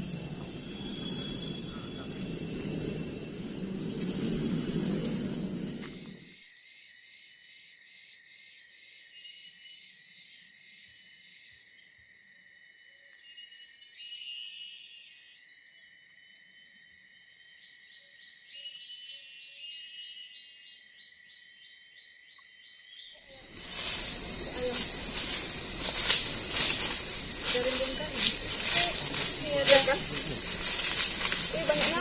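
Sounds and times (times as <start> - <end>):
insects chirping and trilling: 0.0 - 6.2, 23.3 - 32.0.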